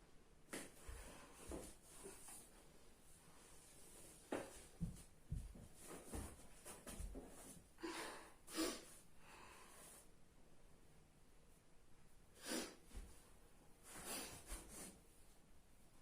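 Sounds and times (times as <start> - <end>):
person breathing or sniffing: 12.4 - 12.9, 13.9 - 15.0.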